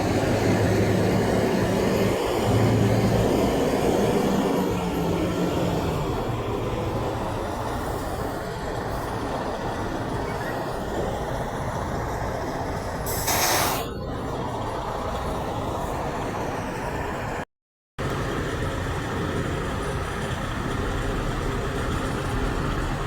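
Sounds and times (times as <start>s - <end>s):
truck traffic rumbling: 0.0s - 17.4s, 18.0s - 23.0s
air brakes hissing: 13.1s - 14.0s.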